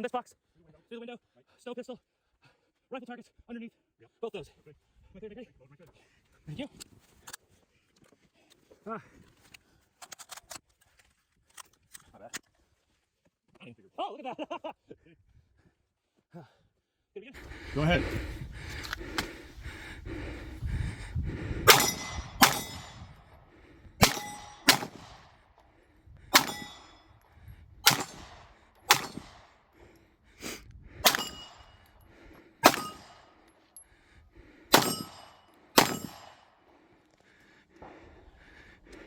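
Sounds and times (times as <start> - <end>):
steel target clanging: 21.7 - 23.0, 24.0 - 25.0, 26.4 - 27.0, 27.9 - 28.3, 28.9 - 29.3, 31.1 - 31.7, 32.6 - 33.2, 34.8 - 36.2
gunshots: 21.7 - 23.1, 24.0 - 25.4, 26.3 - 26.9, 27.8 - 29.6, 31.0 - 31.6, 32.6 - 33.3, 34.7 - 36.4.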